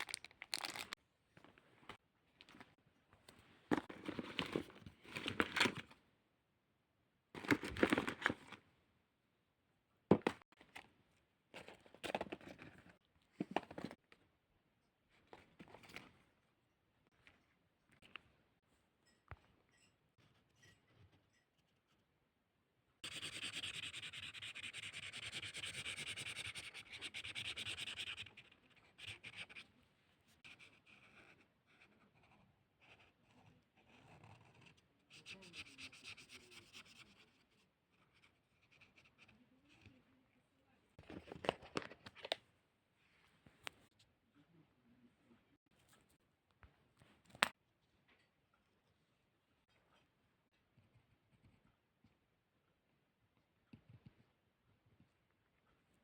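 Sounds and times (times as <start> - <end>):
crinkling and crumpling: 0.0 - 6.0.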